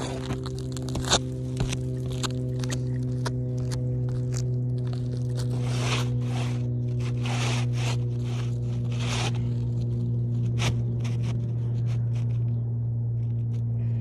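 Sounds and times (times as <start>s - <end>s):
rough scraping strokes: 0.0s - 2.8s, 4.1s - 12.4s
steady low hum: 0.0s - 14.0s.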